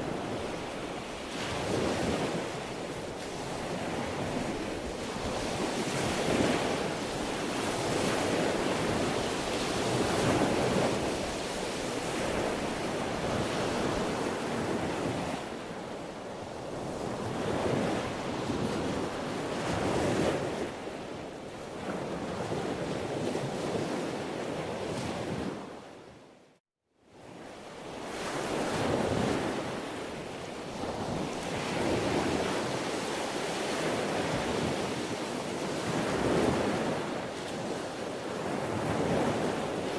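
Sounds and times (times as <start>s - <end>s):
sea waves breaking on shore: 0.0s - 25.9s, 27.2s - 39.9s.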